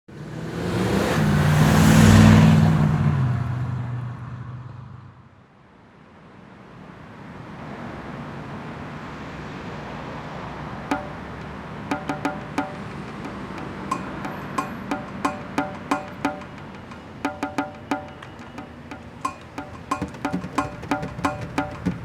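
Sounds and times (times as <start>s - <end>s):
car passing by: 0.1s - 5.2s, 6.7s - 11.9s
street traffic: 0.1s - 22.0s.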